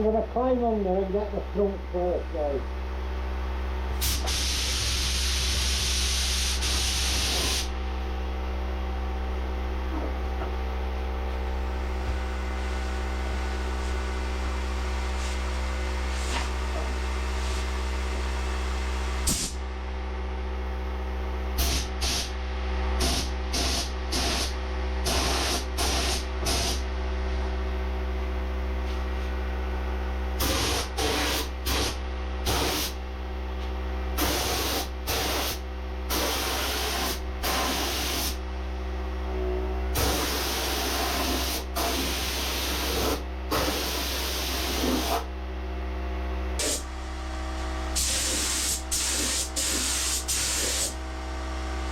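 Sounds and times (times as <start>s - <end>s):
steady hum: 0.0s - 51.9s
spray gun bursts: 4.0s - 7.7s, 21.6s - 22.4s, 23.0s - 26.8s, 30.4s - 33.0s, 34.2s - 38.4s, 40.0s - 45.2s, 46.6s - 46.9s, 48.0s - 51.0s.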